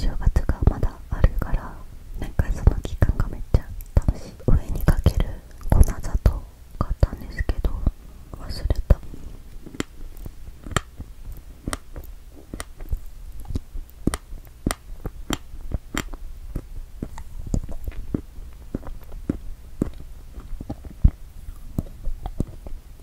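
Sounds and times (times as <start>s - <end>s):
close-miked chewing: 8.9s - 23.0s.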